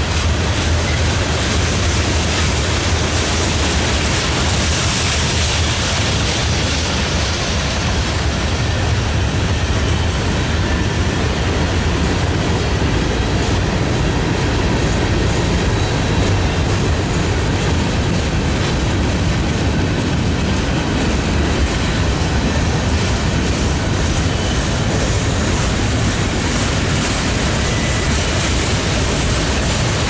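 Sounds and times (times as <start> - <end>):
freight train wheels on track: 0.0 - 30.0.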